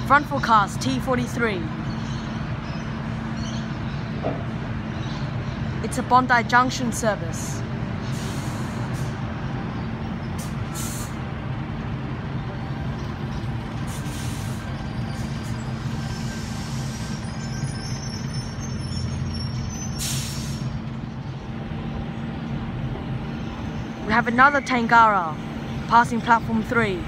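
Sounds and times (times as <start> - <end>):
electric train humming: 0.0 - 27.0
air brake hisses: 8.0 - 9.2, 10.4 - 11.2, 13.9 - 14.7, 16.0 - 17.4, 20.0 - 20.8.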